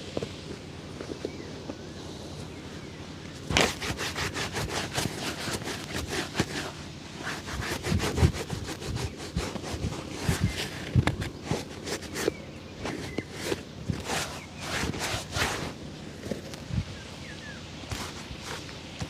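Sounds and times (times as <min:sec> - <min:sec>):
shoe being buffed: 0:03.4 - 0:15.8, 0:17.9 - 0:19.0.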